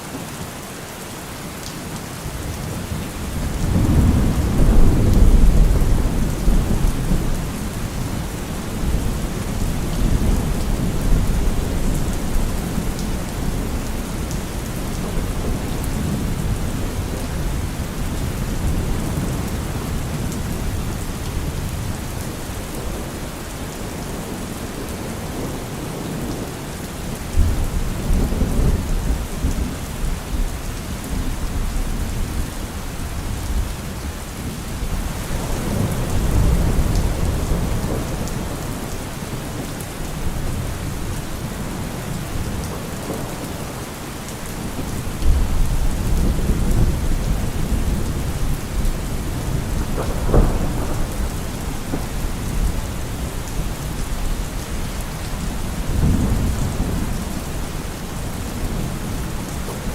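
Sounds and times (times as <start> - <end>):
steady rain: 0.0 - 59.9
thunder rumbling: 2.8 - 22.2, 34.7 - 59.9
sharp thunderclap: 49.3 - 52.8, 55.8 - 57.4.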